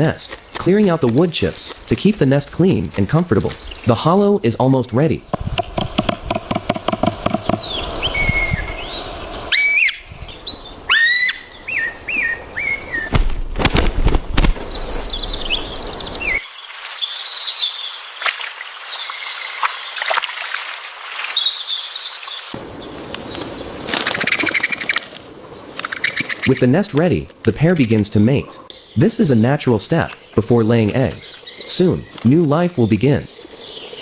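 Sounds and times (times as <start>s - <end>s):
birds chirping: 0.0s - 13.1s, 14.6s - 34.0s
sharp knocks: 5.3s - 7.7s.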